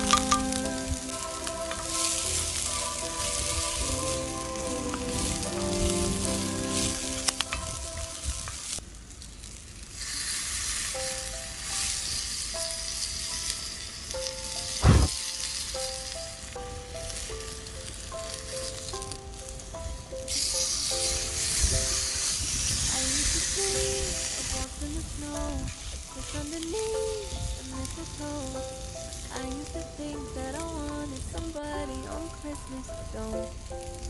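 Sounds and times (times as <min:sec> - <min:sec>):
background music: 0:00.0 - 0:08.8, 0:11.0 - 0:34.0
food frying sizzle: 0:00.0 - 0:34.0
heavy thump: 0:14.8 - 0:15.2.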